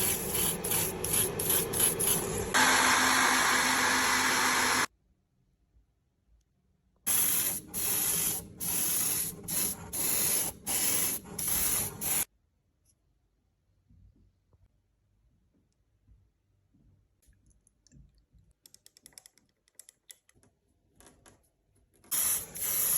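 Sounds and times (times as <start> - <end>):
short spray bursts: 0.0 - 2.6, 7.1 - 12.3, 22.1 - 22.9
paint spraying hiss: 0.0 - 4.9, 7.1 - 12.3, 22.1 - 22.9.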